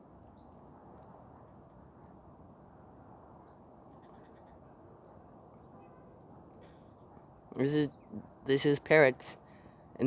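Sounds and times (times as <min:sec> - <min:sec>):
low steady hiss: 0:04.7 - 0:10.0.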